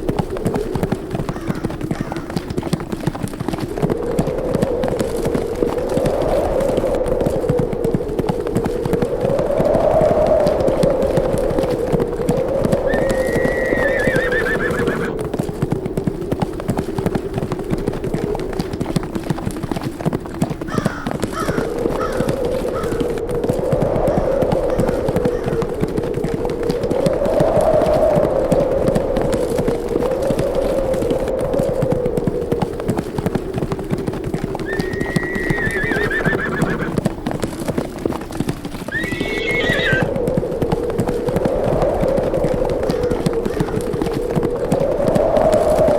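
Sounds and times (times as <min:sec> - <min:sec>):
horses galloping: 0:00.0 - 0:45.9
wind howling: 0:00.0 - 0:45.9
horse whinnying: 0:12.9 - 0:15.1, 0:34.6 - 0:37.0, 0:38.9 - 0:40.1.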